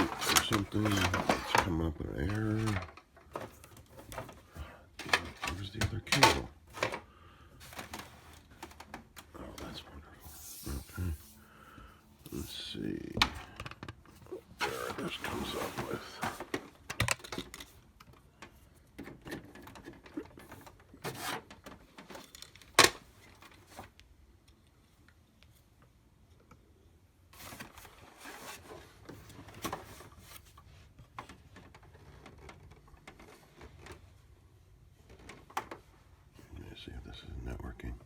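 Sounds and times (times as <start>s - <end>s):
hands handling printer: 0.0s - 9.8s, 12.2s - 24.6s, 27.4s - 36.0s.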